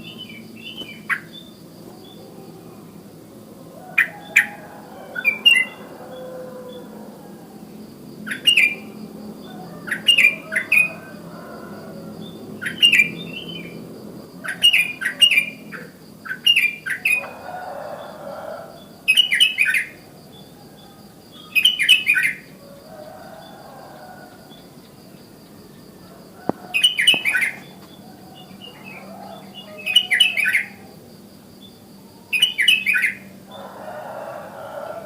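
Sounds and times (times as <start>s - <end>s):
bulbul calling: 26.5s - 30.8s.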